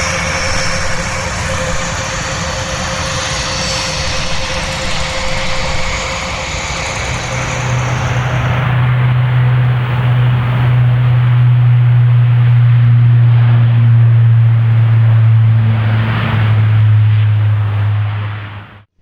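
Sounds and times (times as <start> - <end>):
engine and air roar: 0.0 - 18.9
propeller drone: 0.0 - 19.0.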